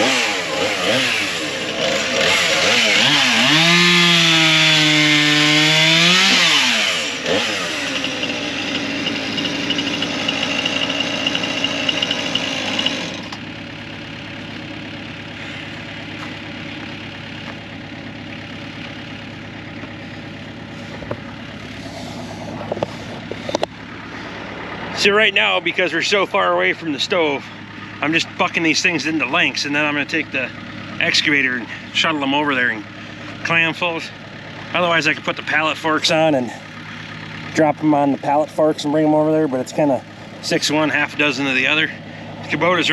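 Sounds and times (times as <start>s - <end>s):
chainsaw cutting log: 0.0s - 13.6s, 14.4s - 24.5s
engine hum: 0.0s - 42.9s.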